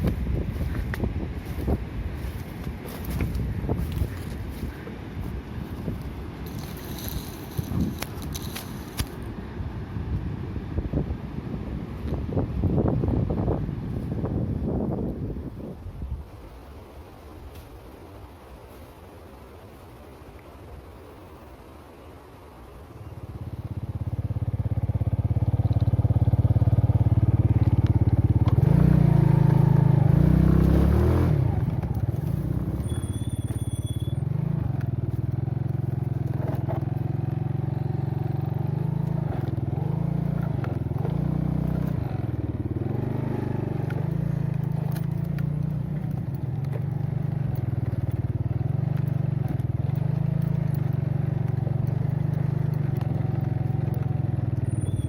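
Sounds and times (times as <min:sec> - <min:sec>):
engine running: 0:00.0 - 0:10.6, 0:23.3 - 0:55.0.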